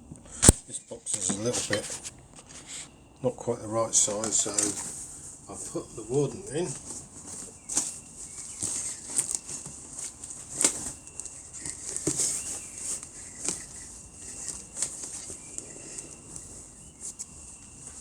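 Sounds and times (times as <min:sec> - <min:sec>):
packing wadding rustling and crinkling: 0:01.1 - 0:18.0
cardboard box being handled: 0:03.9 - 0:18.0.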